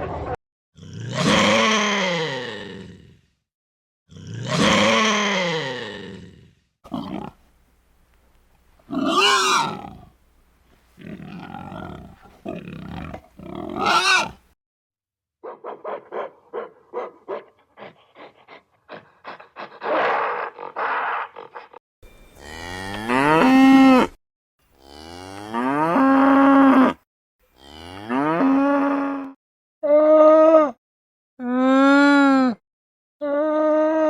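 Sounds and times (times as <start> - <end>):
rough noisy animal sounds: 8.8 - 10.2, 10.9 - 14.6, 15.4 - 24.1
animal calls: 8.9 - 10.1, 11.1 - 14.4.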